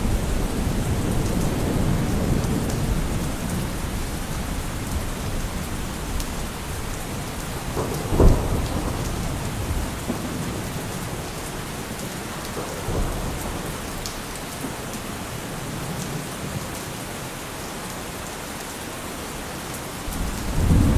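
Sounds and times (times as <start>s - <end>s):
low thunder rumbling: 0.0s - 13.8s, 20.0s - 20.9s
heavy rain: 0.0s - 20.9s
thunderclaps: 6.0s - 13.8s, 20.1s - 20.9s.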